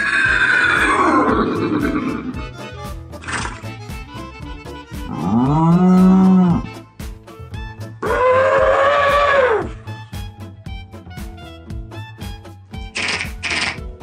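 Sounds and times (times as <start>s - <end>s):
man imitating horse whinny: 0.0s - 2.4s, 5.1s - 6.8s, 8.0s - 9.8s
backing music with steady beat: 0.0s - 8.1s, 9.1s - 14.0s
imitated cow moo: 5.1s - 6.8s.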